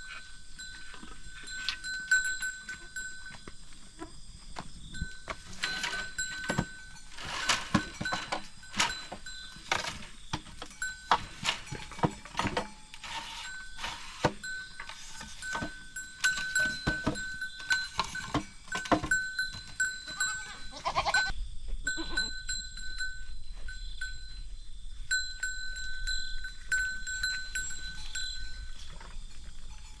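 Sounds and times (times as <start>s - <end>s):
goats knocking and clattering: 1.8s - 13.2s, 14.0s - 20.4s
goat bleating: 20.1s - 22.4s.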